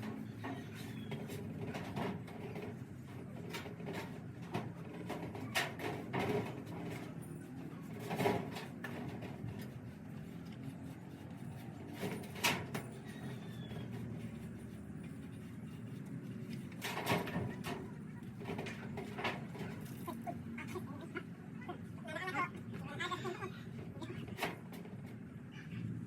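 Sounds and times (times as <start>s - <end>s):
knocks and scrapes: 0.0s - 20.3s.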